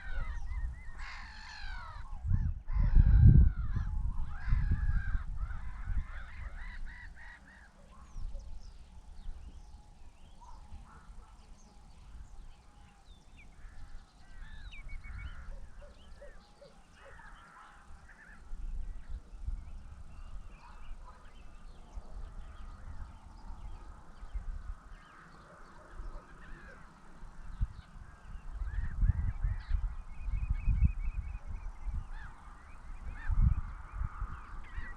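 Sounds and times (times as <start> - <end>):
birds honking: 0.0 - 2.1, 3.5 - 8.0, 10.4 - 18.5
birds chirping: 0.0 - 34.9.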